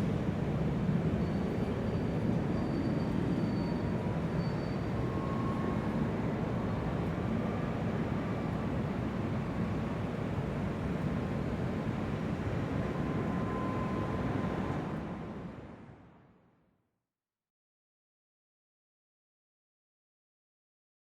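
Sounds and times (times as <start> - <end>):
low rumble of terminal hall: 0.0 - 16.6.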